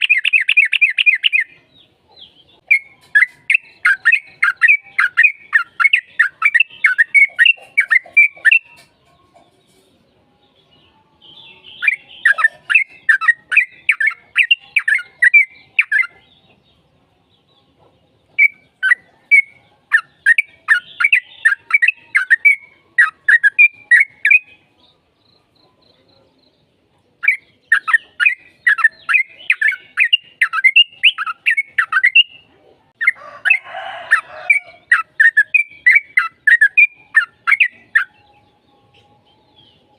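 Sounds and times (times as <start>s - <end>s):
bird bubbly chirping song: 0.0s - 1.6s, 2.6s - 8.8s, 18.4s - 24.6s, 27.2s - 32.4s, 34.9s - 38.2s.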